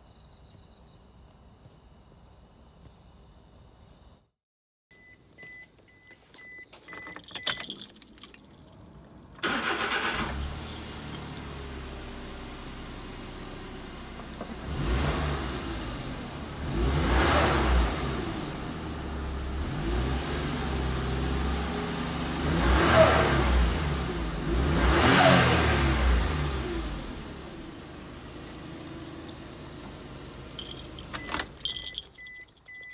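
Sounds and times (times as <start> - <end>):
car engine idling and revving: 9.4 - 32.9.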